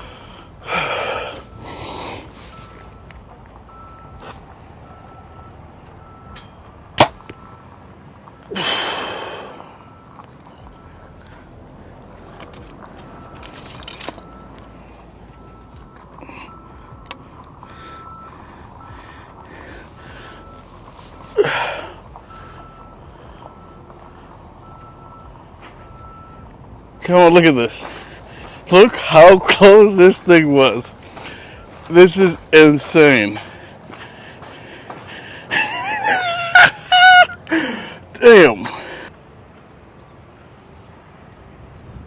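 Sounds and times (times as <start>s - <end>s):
vehicle reversing beeper: 0.0s - 39.1s
arrow striking target: 7.0s - 7.3s.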